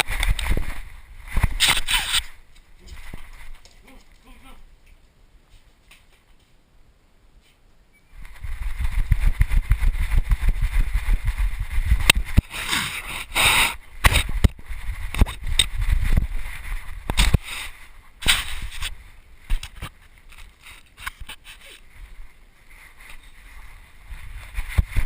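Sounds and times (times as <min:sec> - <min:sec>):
camera microphone rubbing and knocking: 0:00.0 - 0:03.8, 0:08.2 - 0:21.9, 0:22.8 - 0:25.0.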